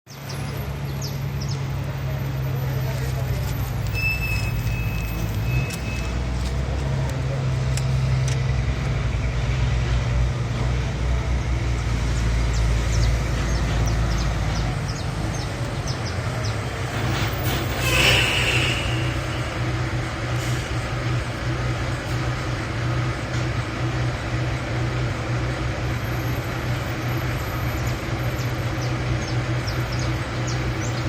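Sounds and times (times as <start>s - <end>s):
low engine hum: 0.1s - 31.0s
short noisy burst: 17.5s - 19.6s.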